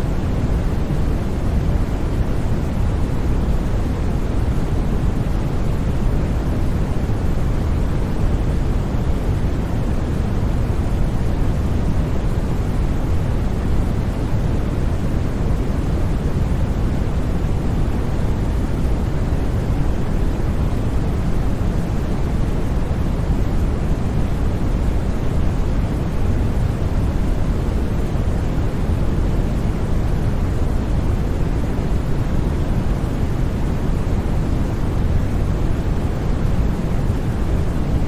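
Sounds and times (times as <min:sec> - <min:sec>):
deep white noise: 0:00.0 - 0:38.0.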